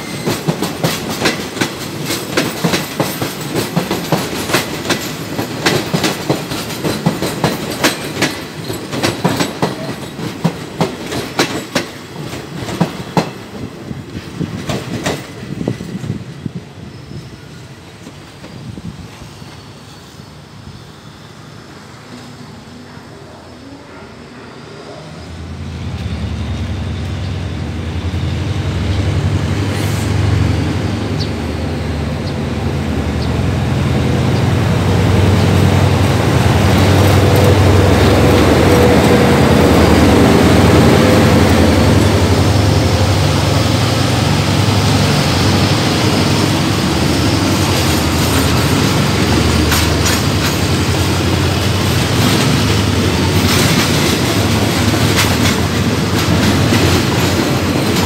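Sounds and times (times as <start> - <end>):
diesel locomotive engine running: 24.3 - 58.0
wheels clicking over rail joints: 47.6 - 58.0.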